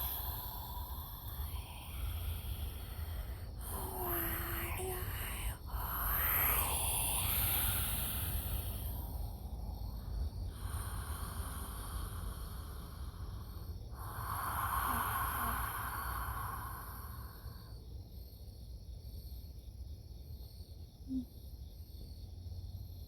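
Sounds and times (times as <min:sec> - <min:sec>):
person breathing deeply: 0:00.0 - 0:17.9
night insects chirring: 0:00.0 - 0:23.0.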